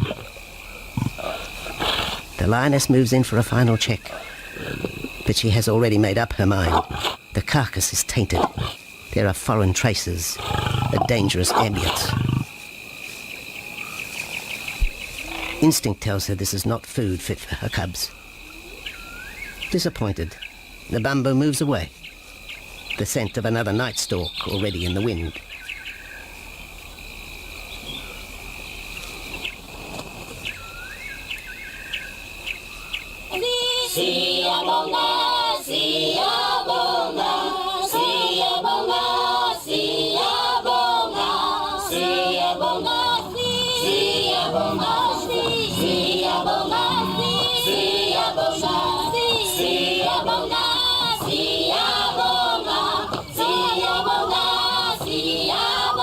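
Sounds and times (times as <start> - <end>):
birds chirping faintly: 0.0 - 33.3
choir singing: 33.3 - 56.0
steady high tone: 42.0 - 54.8.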